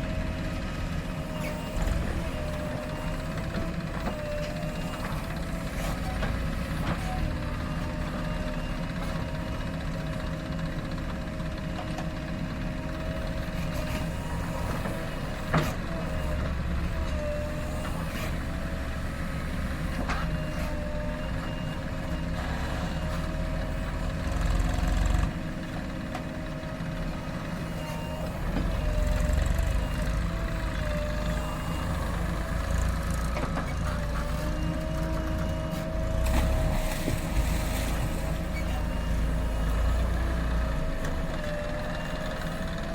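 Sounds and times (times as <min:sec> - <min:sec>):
diesel engine revving: 0:12.2 - 0:42.9.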